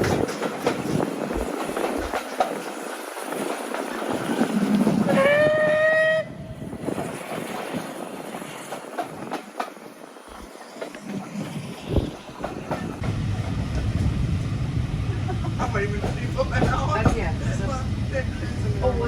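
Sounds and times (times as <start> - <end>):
train running noise: 0.0 - 19.0
steam locomotive whistle: 5.1 - 6.5.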